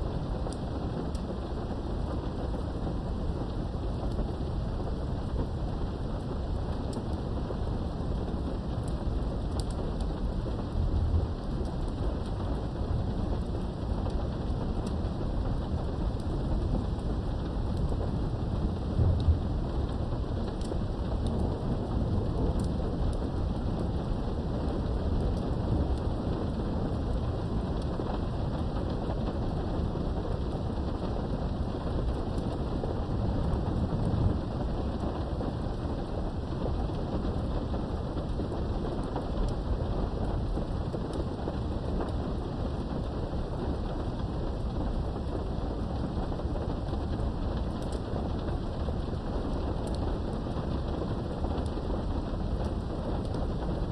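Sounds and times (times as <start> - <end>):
steady rain: 0.0 - 53.9
low rumbling thunder: 10.2 - 14.4, 15.2 - 27.9, 28.5 - 37.6.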